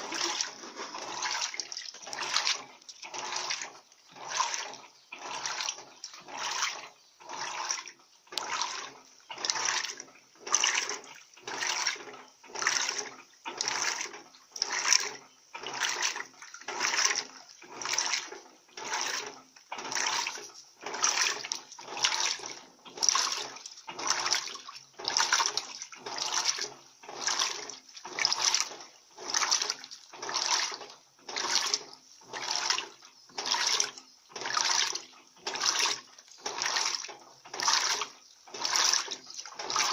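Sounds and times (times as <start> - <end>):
washing machine churning water: 0.0 - 39.9.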